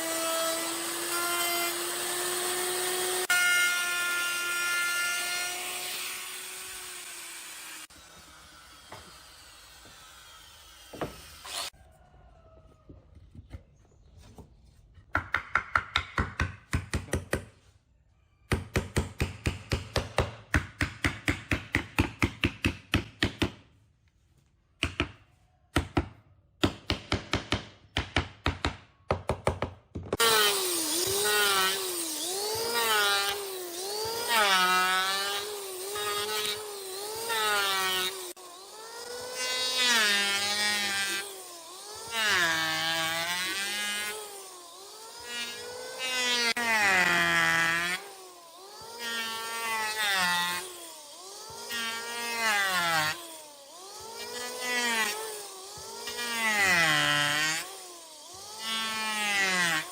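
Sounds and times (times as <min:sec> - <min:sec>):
power tool cutting wood: 0:00.0 - 0:11.8, 0:30.2 - 0:59.9.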